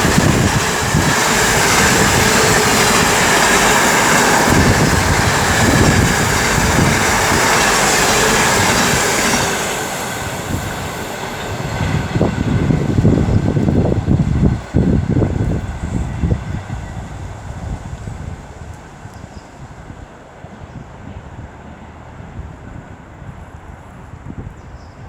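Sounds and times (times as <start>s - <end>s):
train wheels rattling on rails: 0.0s - 24.5s.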